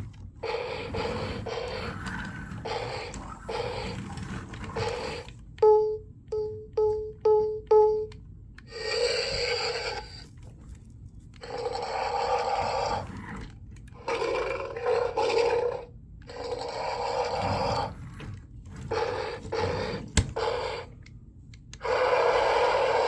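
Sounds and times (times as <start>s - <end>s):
electronic dinosaur toy roars: 0.4s - 5.3s, 8.7s - 10.3s, 11.4s - 20.9s, 21.8s - 23.0s.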